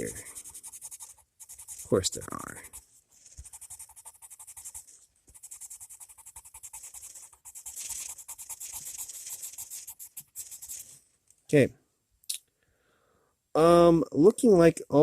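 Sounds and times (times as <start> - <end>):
pencil scratching on paper: 0.0 - 11.0.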